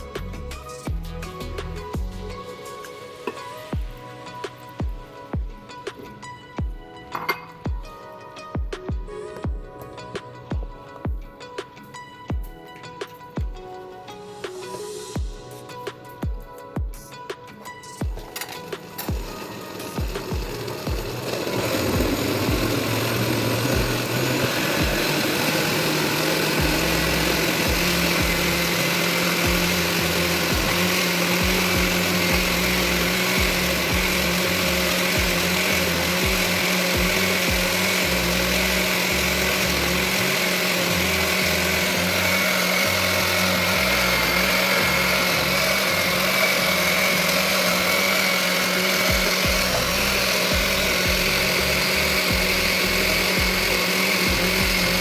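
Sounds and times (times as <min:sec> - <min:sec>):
blender motor running: 0:18.0 - 0:55.0.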